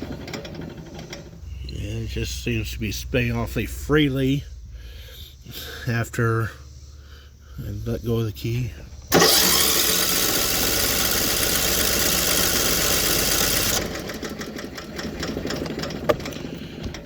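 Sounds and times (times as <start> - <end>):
engine clicking while spinning: 0.0 - 1.8, 9.0 - 17.0
starter cranking engine: 0.0 - 3.4, 8.9 - 17.0.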